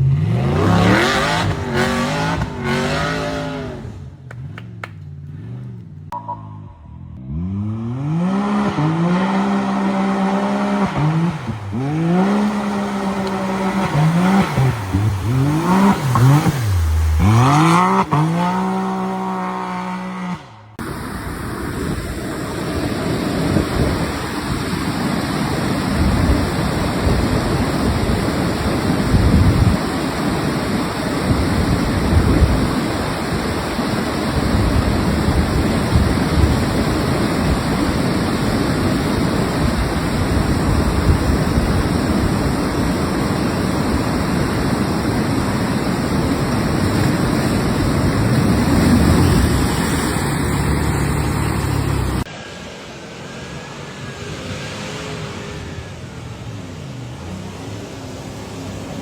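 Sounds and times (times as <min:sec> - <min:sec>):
truck engine revving: 0:00.0 - 0:21.0, 0:21.8 - 0:59.0
steady rushing noise: 0:20.7 - 0:59.0.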